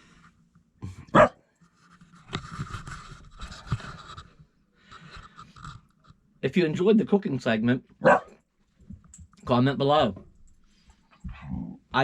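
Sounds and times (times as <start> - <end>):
dog barking: 1.1 - 1.4, 8.0 - 8.4.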